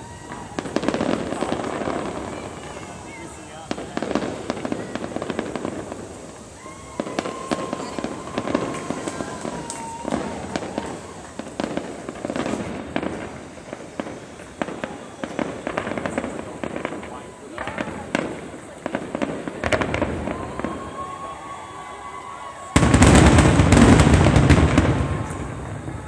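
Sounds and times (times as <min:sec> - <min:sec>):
fireworks bangs and crackles: 0:00.0 - 0:26.0
high whistling tone: 0:07.2 - 0:10.2.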